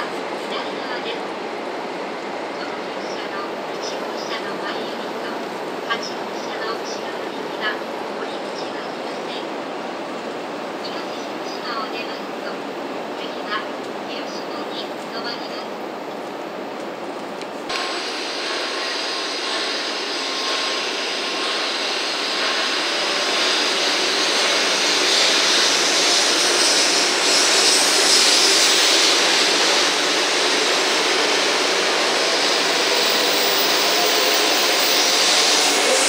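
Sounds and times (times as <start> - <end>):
high-speed train pulling out: 0.0 - 36.0.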